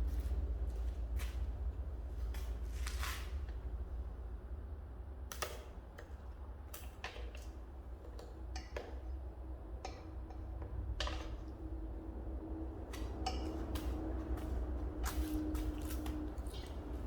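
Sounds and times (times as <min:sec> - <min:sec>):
steady low rumble: 0:00.0 - 0:05.2.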